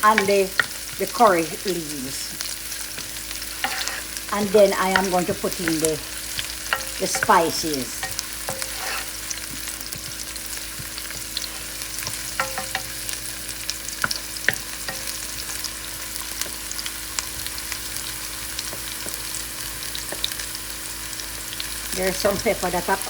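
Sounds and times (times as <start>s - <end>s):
onion sizzling in hot oil: 0.0s - 23.0s
stirring clicks in pot: 9.4s - 13.0s.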